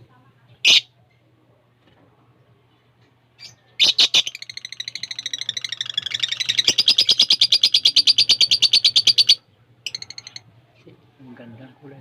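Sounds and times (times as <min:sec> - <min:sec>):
lovebird shrieks and chirps: 0:03.4 - 0:10.4.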